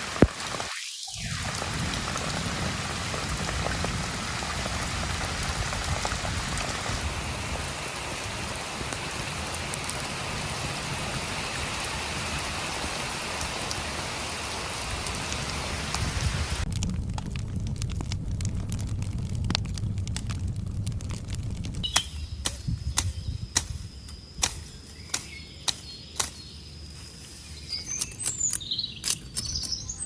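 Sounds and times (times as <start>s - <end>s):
steady rain falling: 0.0s - 23.1s
sharp raindrop impacts: 0.0s - 26.4s.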